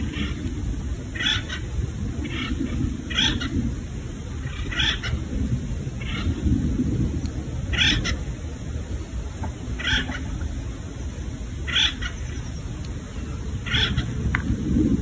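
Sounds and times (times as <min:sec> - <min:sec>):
bird calling: 0:00.0 - 0:03.7, 0:04.4 - 0:05.3, 0:06.0 - 0:06.5, 0:07.6 - 0:08.4, 0:09.4 - 0:14.5
steady low rumble: 0:00.0 - 0:15.0.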